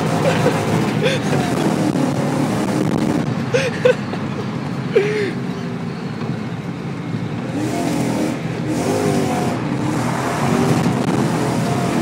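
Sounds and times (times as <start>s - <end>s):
car engine revving: 0.0s - 3.4s, 7.4s - 12.0s
road and tyre noise: 0.0s - 12.0s.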